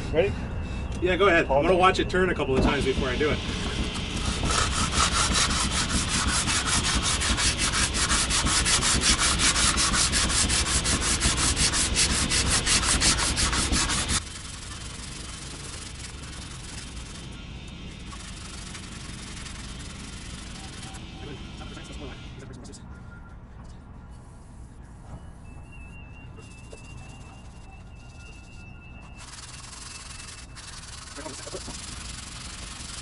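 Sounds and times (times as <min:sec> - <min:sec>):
rhythmic rasping scrape on metal: 0:03.6 - 0:22.8, 0:26.4 - 0:33.0.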